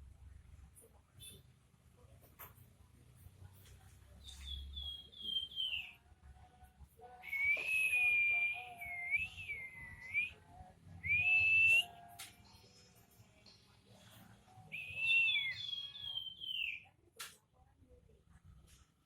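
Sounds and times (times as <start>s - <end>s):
songbird whistling: 4.2s - 6.0s, 7.2s - 10.4s, 11.0s - 12.0s, 14.7s - 16.9s.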